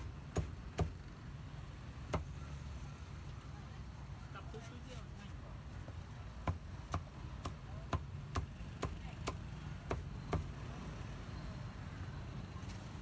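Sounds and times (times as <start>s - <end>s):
cleaver chopping on cutting board: 0.3s - 1.0s.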